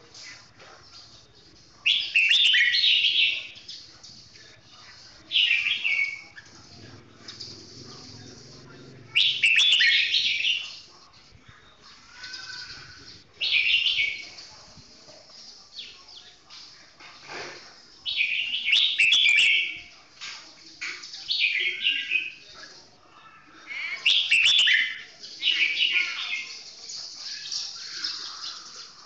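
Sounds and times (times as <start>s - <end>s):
bird singing song phrases: 1.9s - 8.4s, 9.1s - 10.9s, 18.0s - 19.9s, 21.0s - 22.5s, 23.7s - 29.0s.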